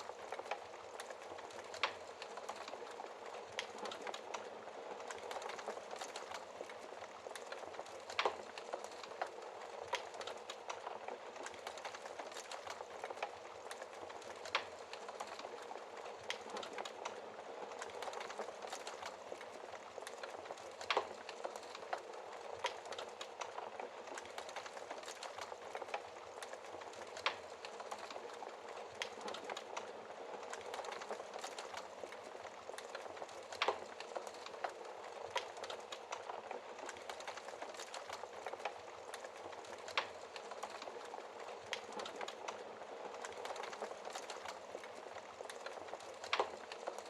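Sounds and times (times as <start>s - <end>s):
wood fire crackling: 0.0s - 47.0s.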